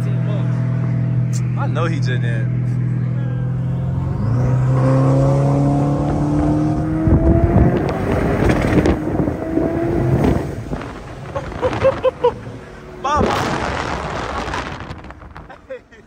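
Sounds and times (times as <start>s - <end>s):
sports car engine accelerating: 0.0s - 15.5s
wind rushing: 4.9s - 15.5s
crackling noise: 13.0s - 16.0s.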